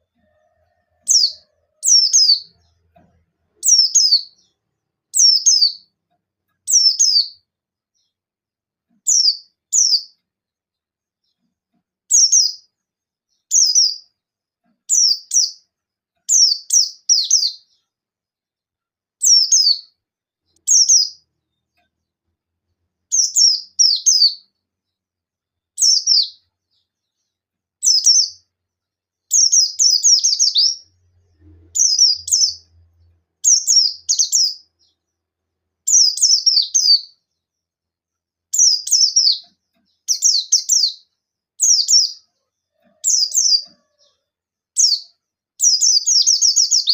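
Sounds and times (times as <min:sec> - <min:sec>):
bird chirping in bursts: 0:01.0 - 0:08.2, 0:09.0 - 0:10.2, 0:12.1 - 0:14.2, 0:14.8 - 0:17.9, 0:19.2 - 0:22.2, 0:23.1 - 0:24.6, 0:25.7 - 0:28.6, 0:29.3 - 0:37.5, 0:38.5 - 0:44.2, 0:44.8 - 0:46.9.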